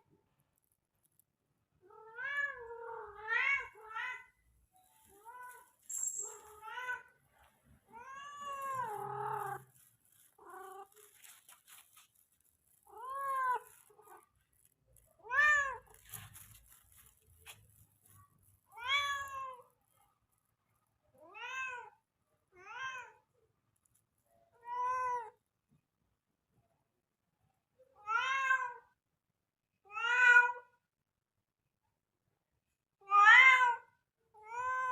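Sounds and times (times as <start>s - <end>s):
cat meowing: 1.8s - 4.4s, 7.9s - 11.3s, 18.7s - 19.6s, 21.2s - 22.0s, 33.0s - 34.9s.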